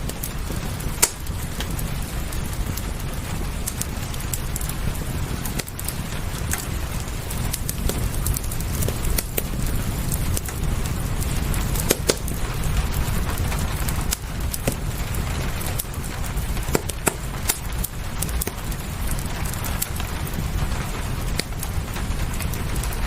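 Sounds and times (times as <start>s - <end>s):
rain hissing: 0.0s - 23.0s
wood fire crackling and popping: 0.0s - 23.0s.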